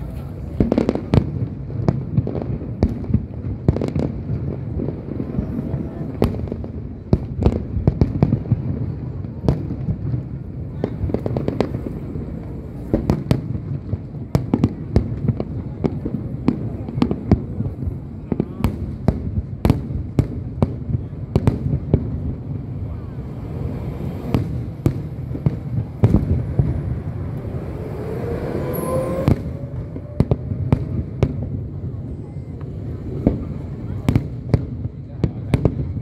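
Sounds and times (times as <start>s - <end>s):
distant firework rumble: 0.0s - 36.0s
firework bangs and crackles: 0.0s - 36.0s
firework whistle: 22.9s - 33.3s.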